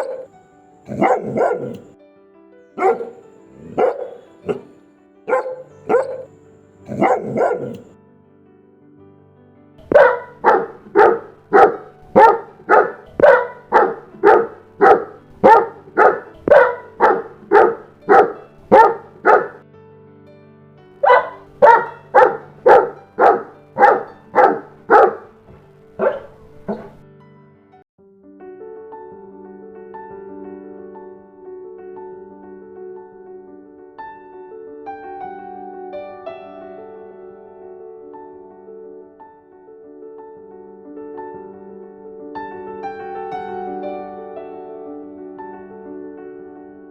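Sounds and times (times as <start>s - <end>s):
dog barking: 0.0s - 0.3s, 0.9s - 2.0s, 2.8s - 6.3s, 6.9s - 7.9s, 9.9s - 19.6s, 21.0s - 27.0s
soft background music: 0.0s - 46.9s.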